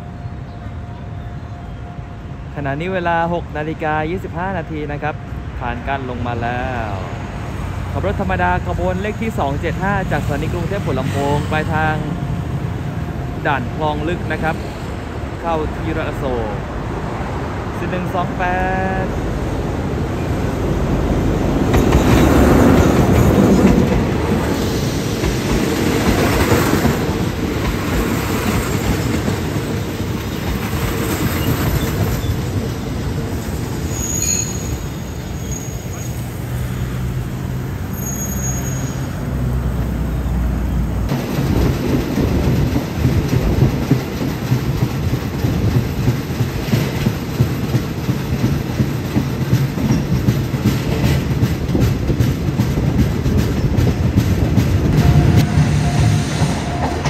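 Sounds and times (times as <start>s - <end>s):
train rumbling on track: 0.0s - 57.0s
wheel squeals: 33.8s - 37.0s, 37.8s - 39.3s
wheels clattering over rail joints: 41.1s - 57.0s.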